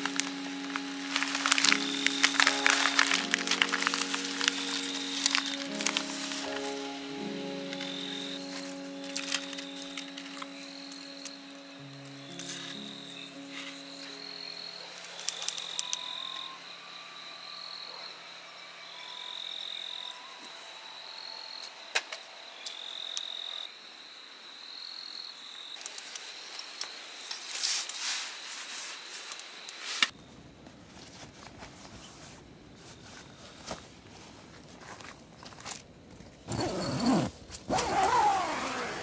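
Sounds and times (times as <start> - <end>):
insect high trill: 0.0 - 21.8.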